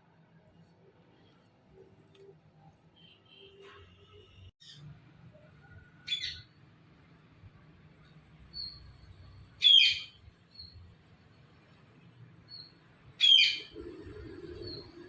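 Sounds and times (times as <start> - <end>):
parrot calls: 13.2 - 13.8.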